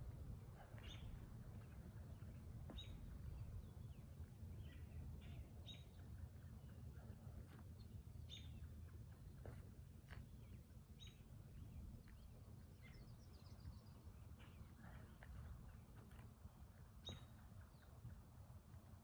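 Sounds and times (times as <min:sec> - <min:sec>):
bird chirping: 0:00.8 - 0:06.8, 0:07.8 - 0:09.5, 0:10.3 - 0:15.1, 0:17.0 - 0:18.0.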